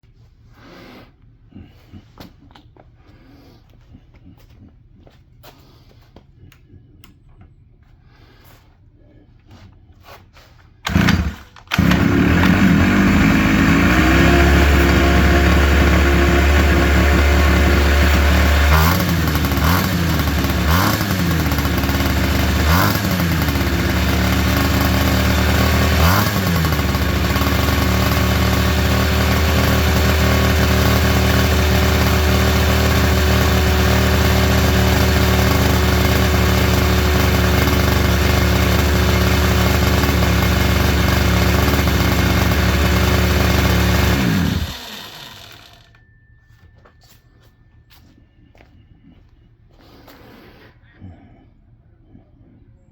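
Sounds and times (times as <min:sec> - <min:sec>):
quad engine revving and idling: 0:10.8 - 0:45.9.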